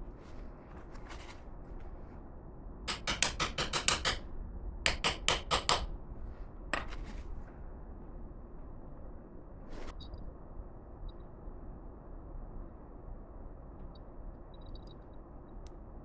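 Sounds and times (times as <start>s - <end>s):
hammer tapping: 2.9s - 4.2s, 4.9s - 5.9s.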